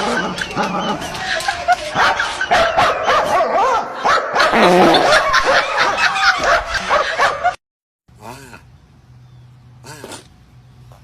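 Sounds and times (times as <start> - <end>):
dog barking and whining: 0.0 - 4.6, 5.4 - 7.6.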